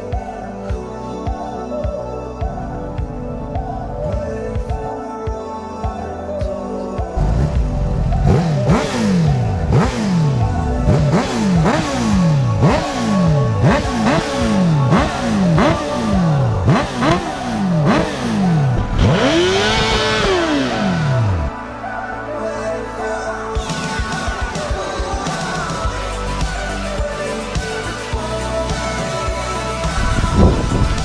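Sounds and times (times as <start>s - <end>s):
background music: 0.0s - 31.0s
motorcycle engine revving: 2.5s - 4.9s, 7.2s - 21.6s.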